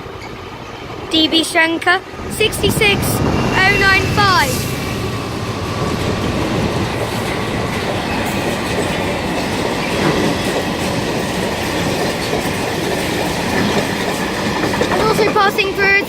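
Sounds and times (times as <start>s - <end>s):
faint wheel squeal: 3.2s - 5.0s
train wheels clicking over rail joints: 5.0s - 16.0s.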